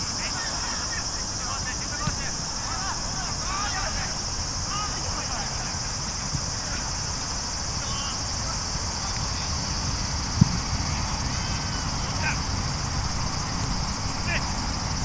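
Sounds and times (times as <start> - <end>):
faint distant shouts: 0.0 - 9.6, 14.1 - 14.7.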